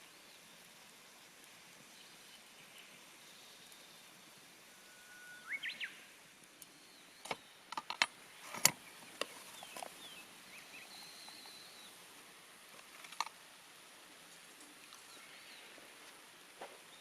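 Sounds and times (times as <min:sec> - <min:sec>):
campfire crackling and popping: 0:00.2 - 0:04.7, 0:05.4 - 0:17.0
bird whistling and chirping: 0:04.8 - 0:06.1, 0:09.6 - 0:11.9.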